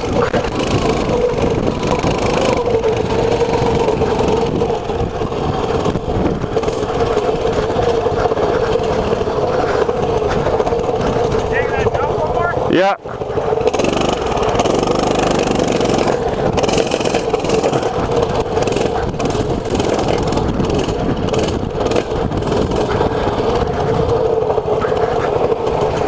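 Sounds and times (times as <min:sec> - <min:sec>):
mini bike engine running: 0:00.0 - 0:26.0.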